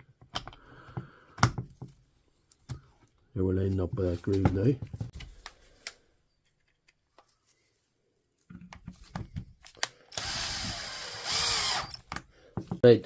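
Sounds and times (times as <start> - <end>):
plastic parts clicking and knocking: 0.0 - 2.0
power drill whirring: 10.1 - 12.2.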